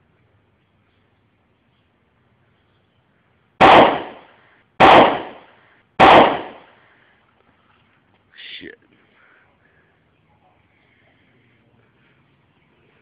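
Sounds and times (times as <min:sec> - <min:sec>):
loud bangs of dry ice bomb: 0:03.6 - 0:04.2, 0:04.8 - 0:06.6.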